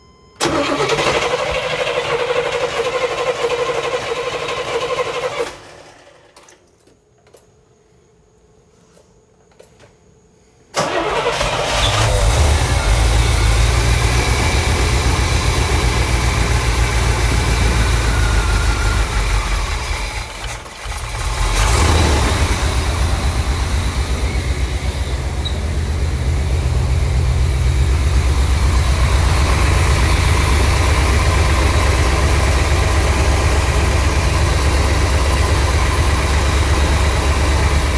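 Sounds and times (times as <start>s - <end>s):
car engine idling rough: 12.1s - 37.9s.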